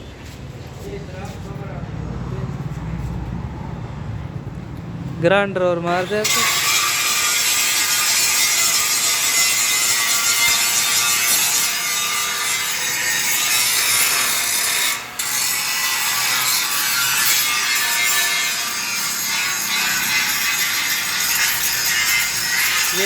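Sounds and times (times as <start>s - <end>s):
angle grinder grinding metal: 5.8s - 23.0s.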